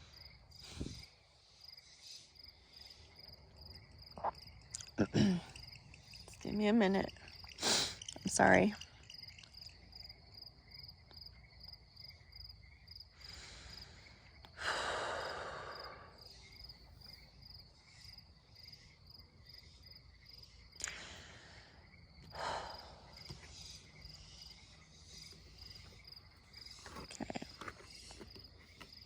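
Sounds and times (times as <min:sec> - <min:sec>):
woman sighing and breathing shakily: 0:04.8 - 0:05.7.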